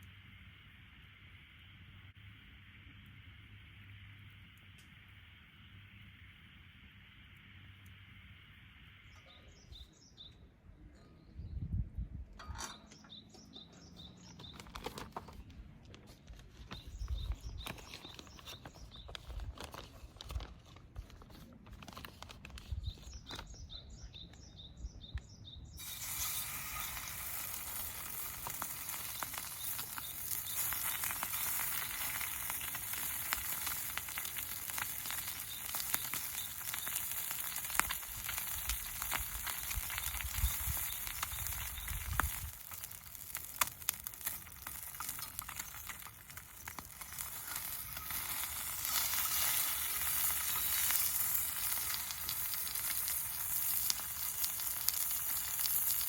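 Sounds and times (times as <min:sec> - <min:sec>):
faint bird chirps: 0:05.5 - 0:15.4, 0:22.6 - 0:32.6, 0:39.5 - 0:42.5
food frying in a hot pan: 0:25.8 - 0:56.0.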